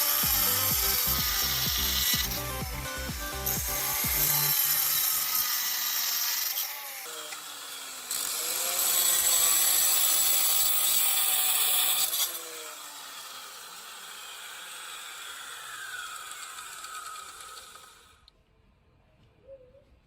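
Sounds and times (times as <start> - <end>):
power tool whining: 0.0 - 18.3.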